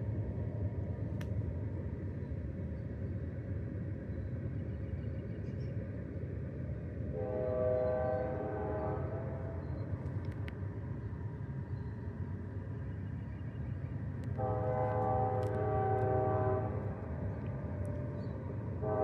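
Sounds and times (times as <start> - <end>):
train air horn blasts: 7.2 - 9.6, 14.4 - 17.0, 18.8 - 19.0.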